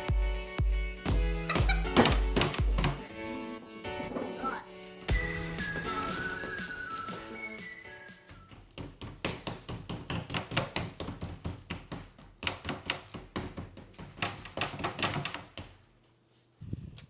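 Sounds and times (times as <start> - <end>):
rapid uneven tapping and knocking: 8.3 - 15.8.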